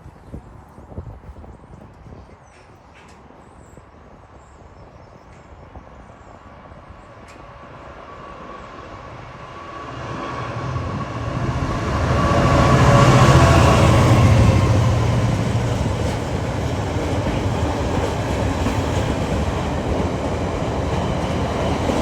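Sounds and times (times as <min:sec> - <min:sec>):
electric train approaching: 0:06.4 - 0:22.0.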